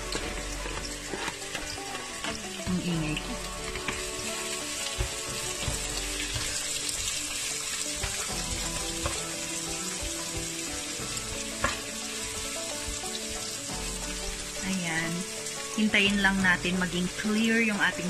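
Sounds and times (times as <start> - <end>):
onion sizzling in a pot: 0.0 - 18.0
spatula tapping a pot: 4.7 - 13.5.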